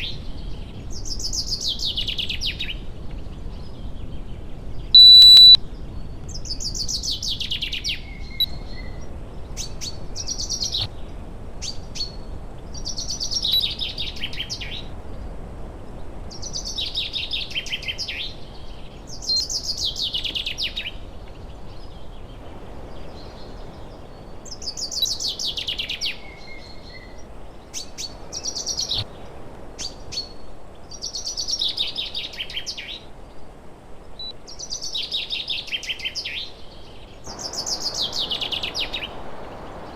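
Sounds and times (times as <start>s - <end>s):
short high bird chirps: 5.0s - 5.6s, 37.3s - 39.5s
songbird singing falling notes: 5.0s - 5.6s, 37.3s - 39.9s.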